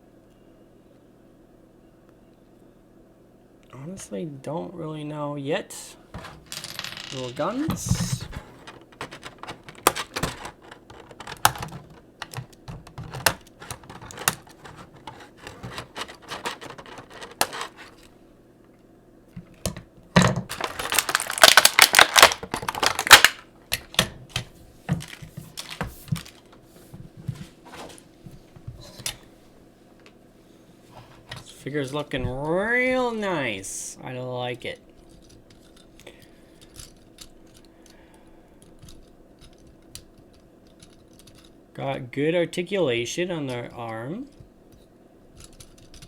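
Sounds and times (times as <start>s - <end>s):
plastic toy parts clicking: 7.1s - 17.9s, 20.5s - 24.1s, 38.8s - 41.5s, 45.4s - 46.0s.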